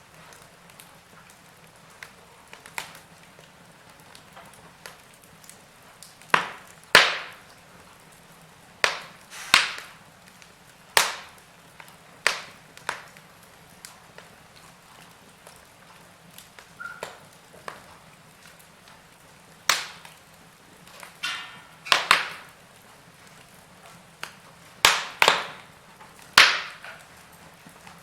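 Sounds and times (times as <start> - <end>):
wood fire crackling: 0.0 - 28.0
loud sharp fire pops: 4.2 - 7.6, 8.8 - 14.7, 19.6 - 20.2, 20.8 - 22.6, 23.3 - 27.8
faint hiss: 7.2 - 20.9.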